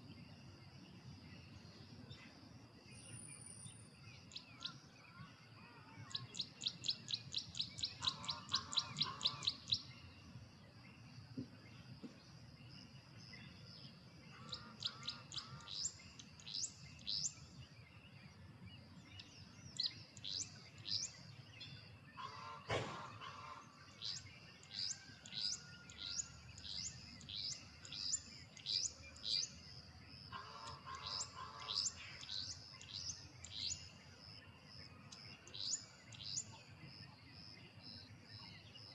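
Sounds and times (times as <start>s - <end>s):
wren singing: 6.1s - 10.0s, 24.0s - 29.6s, 30.6s - 34.0s.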